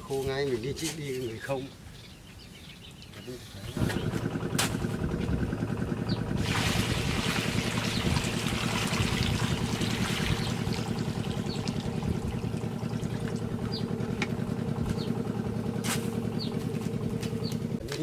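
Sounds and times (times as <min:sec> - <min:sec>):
small engine running: 0:03.8 - 0:18.0.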